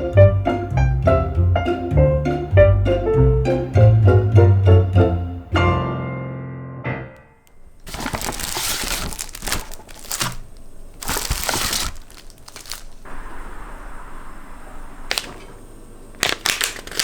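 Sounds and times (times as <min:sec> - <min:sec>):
background music: 0:00.0 - 0:07.2
packaging crinkling: 0:07.5 - 0:13.1, 0:15.1 - 0:17.0.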